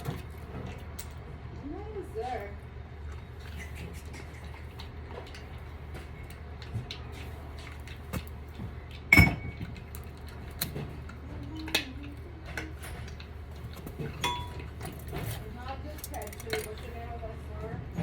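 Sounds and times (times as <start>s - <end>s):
tools clicking and clinking: 16.0s - 16.9s.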